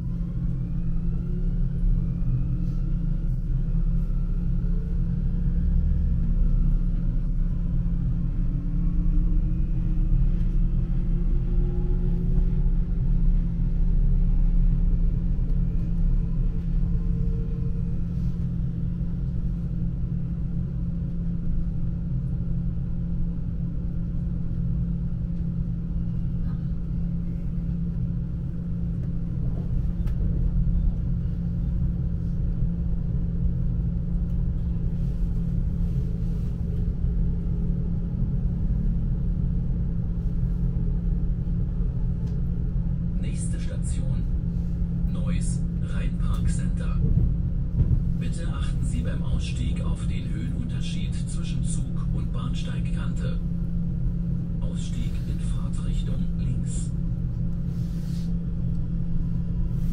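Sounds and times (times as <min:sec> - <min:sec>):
faint constant hum: 0:00.0 - 0:59.9
train wheels rumbling on rails: 0:27.9 - 0:38.9, 0:46.1 - 0:53.0.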